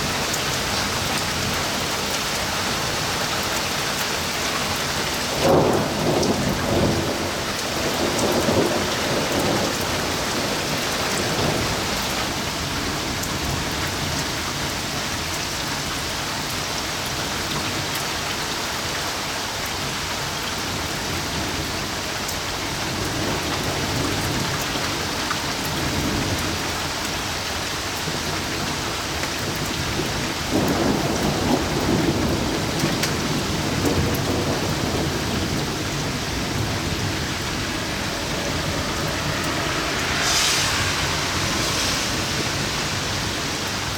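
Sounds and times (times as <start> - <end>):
thunder rumbling: 0.0 - 14.6, 28.2 - 43.9
steady rain falling: 0.0 - 43.9.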